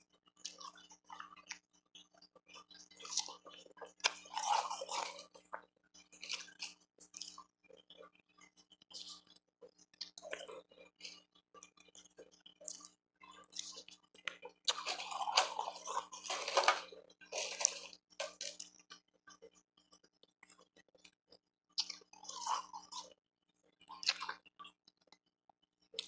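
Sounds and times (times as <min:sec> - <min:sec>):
chewing and crunching ice: 0:00.0 - 0:25.2.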